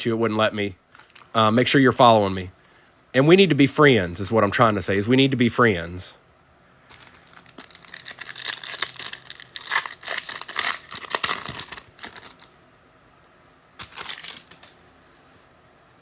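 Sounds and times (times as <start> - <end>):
foil wrapper tearing and crinkling: 6.9 - 12.5, 13.8 - 14.7.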